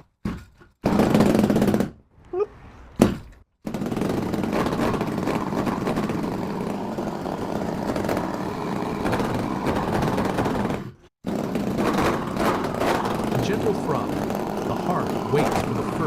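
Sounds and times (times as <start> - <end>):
mini motorcycle engine running: 3.7 - 16.0.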